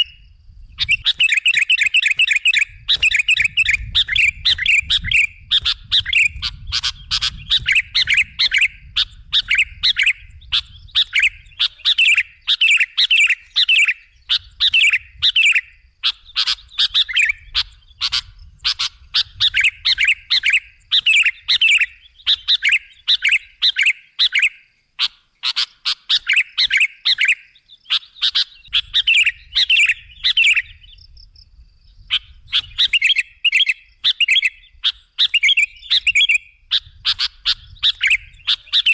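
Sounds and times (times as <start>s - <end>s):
bulbul chirping: 0.8s - 31.2s.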